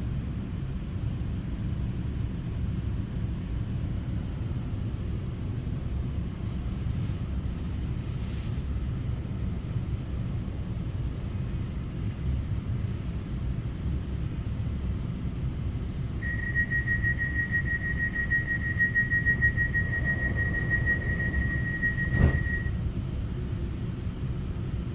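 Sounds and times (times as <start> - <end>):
steady high-pitched tone: 16.2 - 22.8
train wheels rumbling: 16.2 - 24.8.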